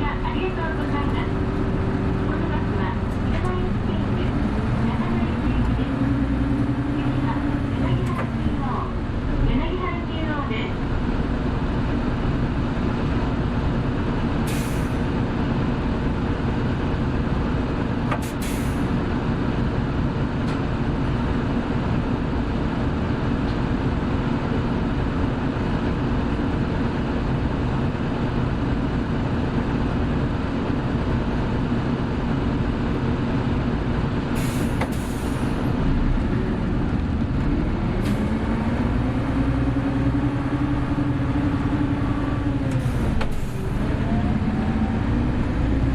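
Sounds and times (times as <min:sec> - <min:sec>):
bus engine humming: 0:00.0 - 0:45.9
air brake hisses: 0:14.5 - 0:15.0, 0:18.2 - 0:18.9, 0:34.4 - 0:35.7.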